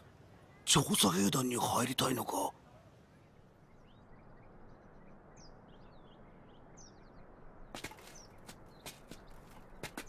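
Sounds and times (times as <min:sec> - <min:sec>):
small birds chirping: 0:00.0 - 0:10.0
footsteps: 0:07.8 - 0:10.0.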